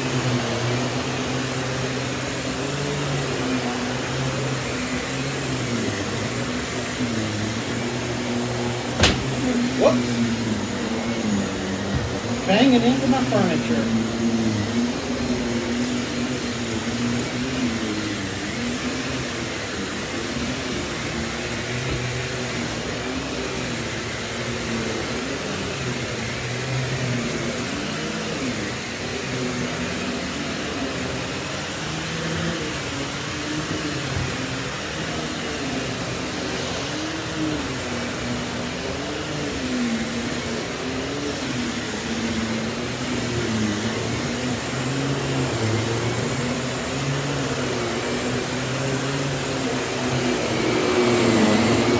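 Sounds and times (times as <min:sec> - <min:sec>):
stick vacuum motor hum: 0:00.0 - 0:19.2.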